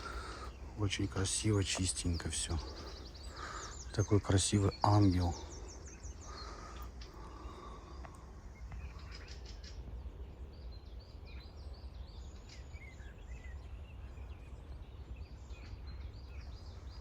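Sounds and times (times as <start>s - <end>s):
small birds chirping: 0.0s - 17.0s
steady low rumble: 0.0s - 17.0s
faint clicks: 7.9s - 8.9s.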